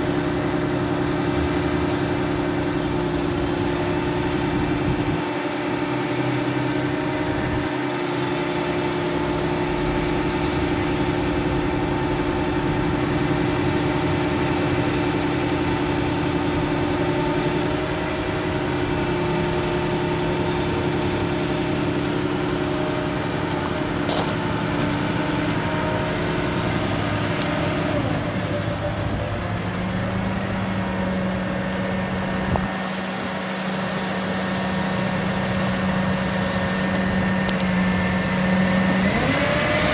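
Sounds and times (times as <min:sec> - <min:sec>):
truck engine humming: 0:00.0 - 0:39.9.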